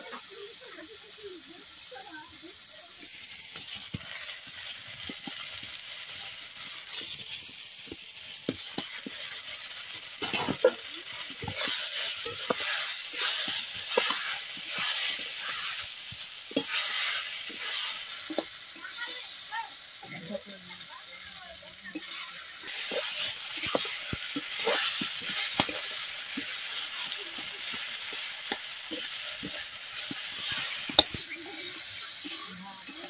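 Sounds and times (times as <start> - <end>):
curry sizzling in a wok: 0.0 - 33.0
metal spatula scraping wok: 8.5 - 19.4, 21.8 - 33.0.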